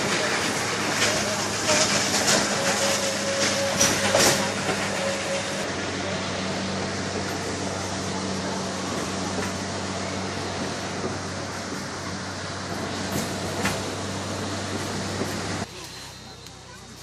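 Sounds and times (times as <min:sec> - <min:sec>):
train cars rumbling and rattling: 0:00.0 - 0:17.0.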